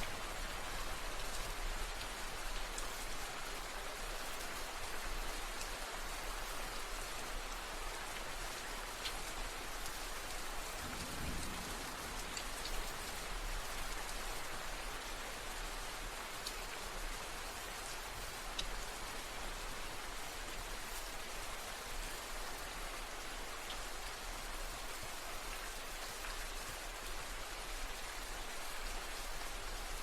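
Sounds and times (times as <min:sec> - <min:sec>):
rain falling: 0:00.0 - 0:30.0
low rumble: 0:10.8 - 0:13.1.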